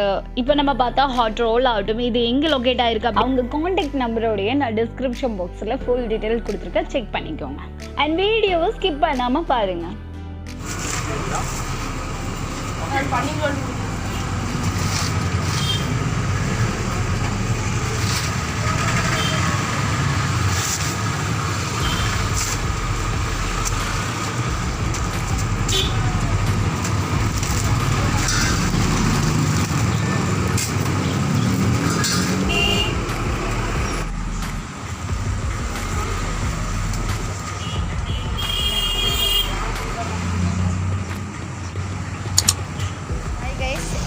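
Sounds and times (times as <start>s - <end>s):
vehicles passing: 10.5s - 44.0s
horn toots: 15.3s - 16.1s, 18.6s - 19.8s, 21.7s - 22.6s, 25.6s - 26.3s, 31.0s - 34.1s, 37.4s - 39.9s.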